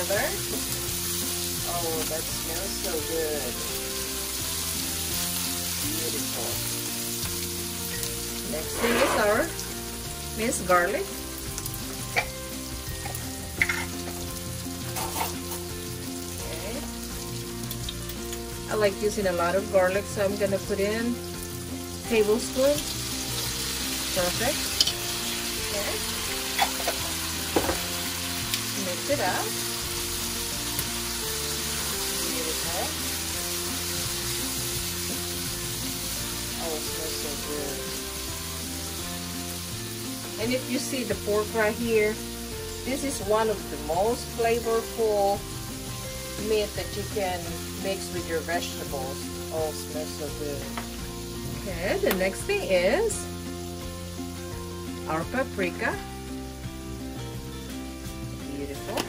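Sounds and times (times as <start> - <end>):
food sizzling in a skillet: 0.0 - 59.0
spoon clinking on skillet: 13.0 - 14.2.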